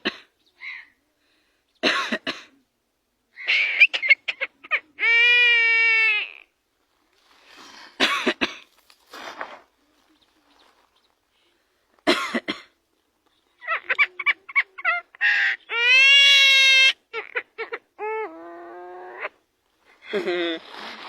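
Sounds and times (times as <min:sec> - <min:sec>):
bird cough-like noises: 0:00.0 - 0:00.8, 0:01.8 - 0:02.6, 0:12.0 - 0:12.8
bird short pitched calls: 0:03.4 - 0:04.8
bird long squawk: 0:03.4 - 0:06.4, 0:13.6 - 0:19.4.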